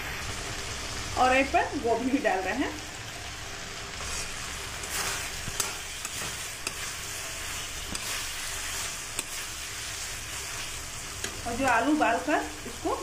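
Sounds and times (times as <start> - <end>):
food sizzling in a pan: 0.0 - 13.0
spatula scraping a pan: 4.0 - 11.4.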